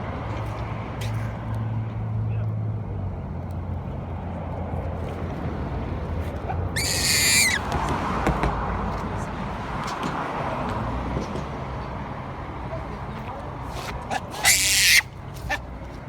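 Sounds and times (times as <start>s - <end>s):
baboon screaming: 6.8s - 7.7s, 14.1s - 15.6s.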